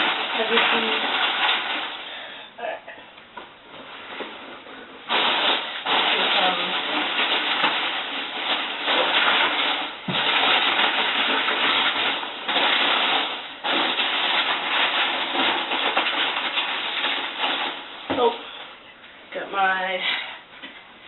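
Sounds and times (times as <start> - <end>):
packaging rustling and crinkling: 0.0 - 2.4, 3.6 - 18.7.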